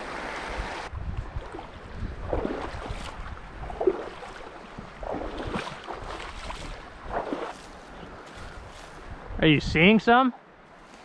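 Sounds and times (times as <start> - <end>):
wind buffeting microphone: 0.0 - 9.8
stream water running: 0.0 - 11.0.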